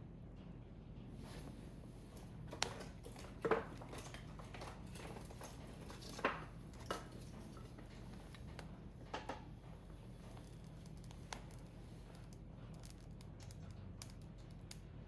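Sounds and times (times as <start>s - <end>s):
firewood popping and crackling: 10.2s - 15.0s.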